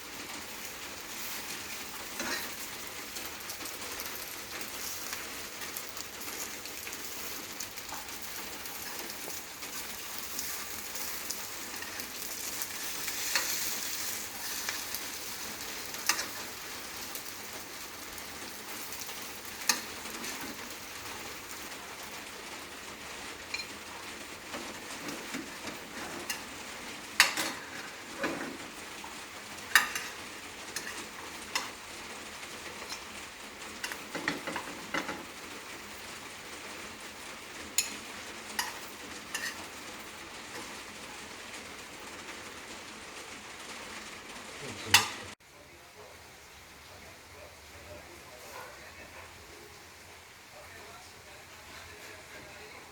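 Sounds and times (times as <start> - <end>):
bread sizzling in a frying pan: 0.0 - 52.9
utensil clinking against pan: 27.2 - 27.6, 29.7 - 30.2, 44.9 - 45.2.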